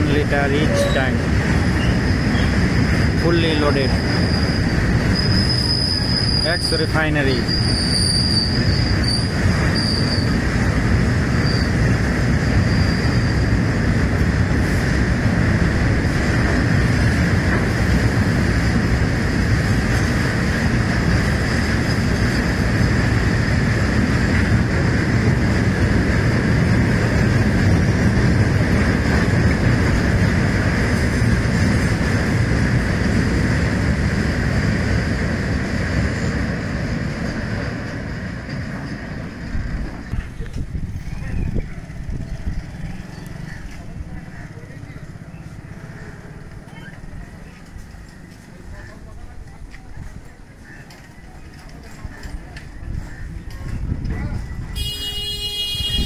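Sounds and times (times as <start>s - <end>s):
high wheel squeal: 0.0s - 10.6s, 11.3s - 13.7s, 21.1s - 23.1s
steel wheels rumbling on rails: 0.0s - 56.0s.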